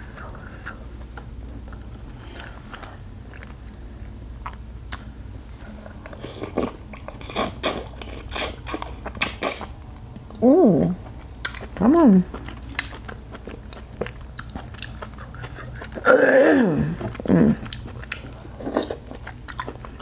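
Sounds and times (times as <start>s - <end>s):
person chewing crab: 5.9s - 9.8s, 11.0s - 20.0s
person humming: 10.4s - 11.0s, 16.0s - 17.7s.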